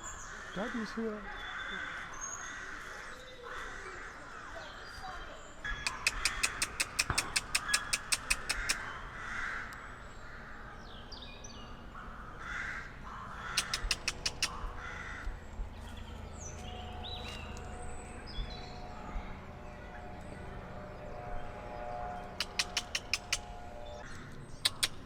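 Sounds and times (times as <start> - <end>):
short noisy bird calls: 0.0 - 25.0
bird clicking notes: 5.7 - 8.8, 13.5 - 14.7, 22.4 - 23.5, 24.6 - 25.0.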